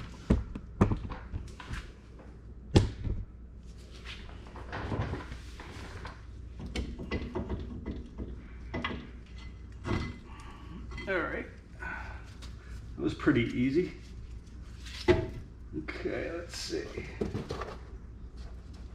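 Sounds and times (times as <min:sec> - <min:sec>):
metal knocks and clunks: 0:06.5 - 0:10.3.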